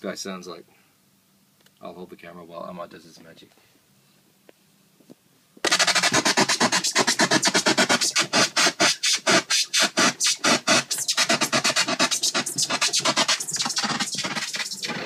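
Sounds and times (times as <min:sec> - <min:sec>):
stuttering synthesized noise pulses: 0:05.6 - 0:15.0.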